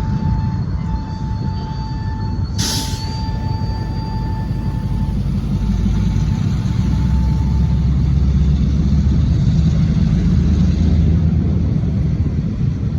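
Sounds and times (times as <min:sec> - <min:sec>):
locomotive diesel rumble: 0:00.0 - 0:12.9
faint wheel squeal: 0:02.6 - 0:08.2.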